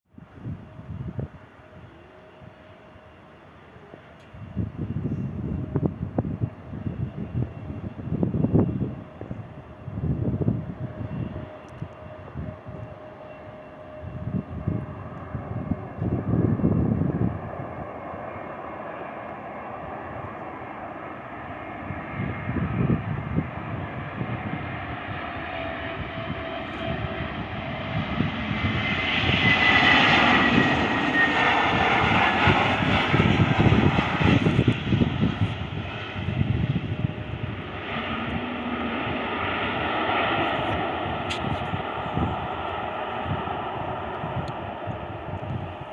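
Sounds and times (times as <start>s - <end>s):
jet engines on approach: 0.1s - 45.9s
high engine whine dropping in pitch: 22.2s - 45.8s.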